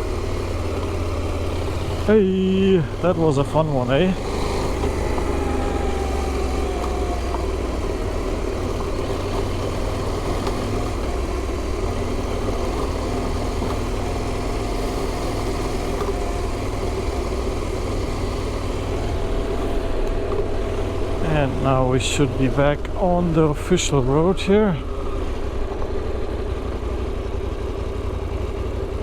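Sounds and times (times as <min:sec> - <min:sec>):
motorcycle engine rumble: 0:00.0 - 0:29.0.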